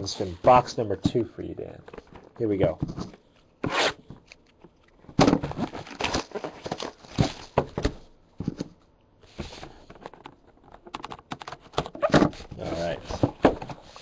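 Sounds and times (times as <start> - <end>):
plastic wrap and cardboard tearing: 5.3 - 7.6.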